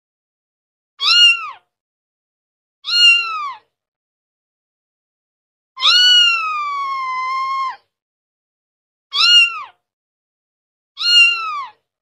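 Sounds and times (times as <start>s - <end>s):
cat meowing: 1.0s - 1.7s, 2.8s - 3.7s, 5.8s - 7.8s, 9.1s - 9.8s, 11.0s - 11.9s.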